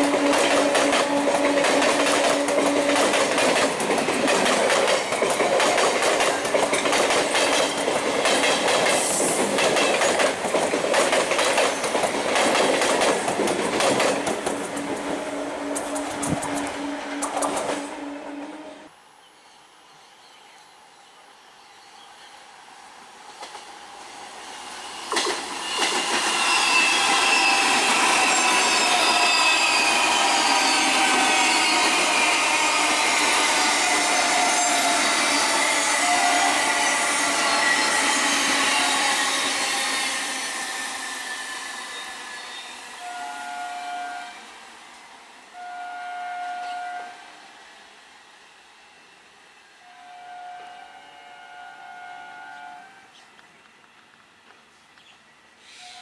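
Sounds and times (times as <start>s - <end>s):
train horn blasts: 0.0s - 3.1s, 15.3s - 18.9s, 25.7s - 39.2s, 43.0s - 44.5s, 45.5s - 47.5s, 49.6s - 53.1s
train wheels on rail with whine: 0.0s - 19.0s, 20.9s - 56.0s.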